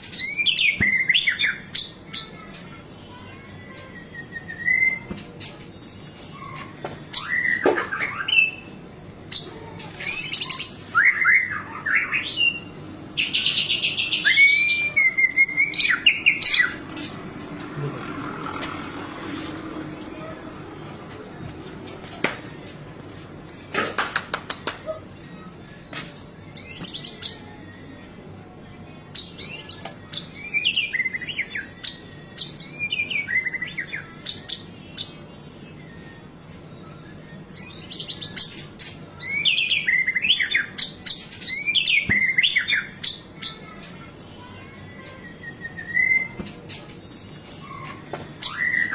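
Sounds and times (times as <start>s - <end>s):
songbird singing whistles: 3.6s - 5.2s, 6.3s - 8.7s, 9.3s - 16.8s, 29.1s - 43.6s, 44.9s - 46.6s, 47.4s - 48.9s.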